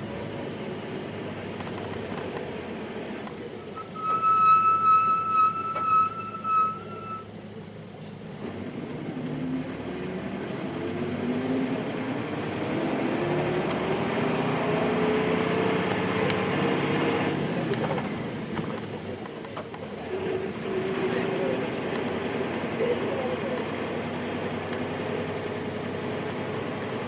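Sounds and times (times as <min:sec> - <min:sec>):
bus engine accelerating: 0:00.0 - 0:27.0
steady electronic tone: 0:02.4 - 0:07.3.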